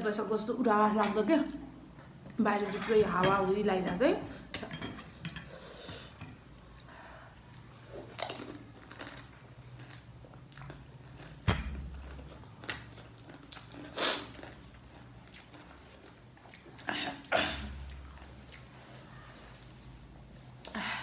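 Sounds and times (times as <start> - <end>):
eating bites and mouth noises: 12.0 - 16.9.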